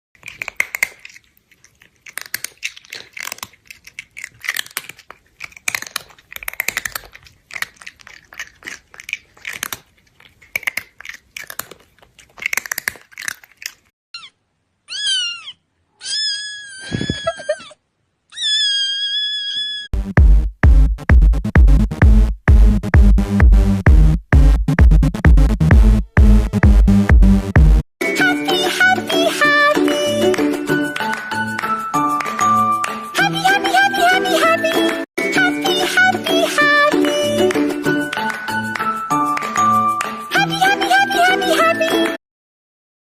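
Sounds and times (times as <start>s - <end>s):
cat crunching food: 0.2s - 13.9s
cat meowing: 14.2s - 19.9s.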